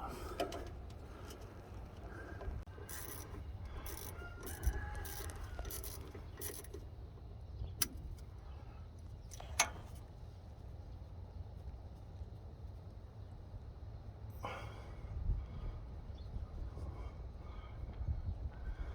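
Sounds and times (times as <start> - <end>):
tools scraping and clinking: 2.8 - 6.8
sharp metallic clicks: 2.8 - 6.9.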